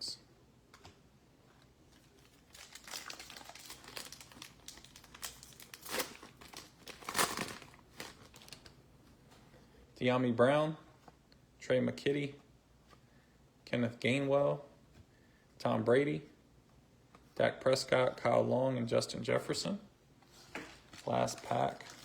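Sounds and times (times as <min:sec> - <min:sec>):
wrapper crackling: 0:02.0 - 0:08.8, 0:20.9 - 0:22.0
wrapper ripping: 0:02.1 - 0:08.7, 0:20.9 - 0:22.0.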